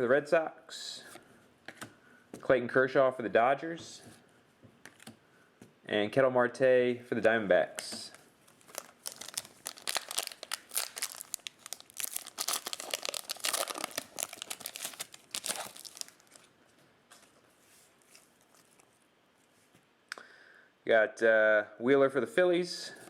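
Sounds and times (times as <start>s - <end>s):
foil wrapper crinkling and tearing: 8.5s - 16.5s.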